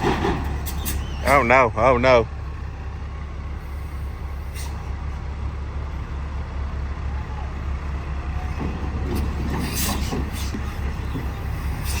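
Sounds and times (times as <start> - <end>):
knocks and rattles: 0.0 - 0.8
diesel engine droning: 0.0 - 12.0.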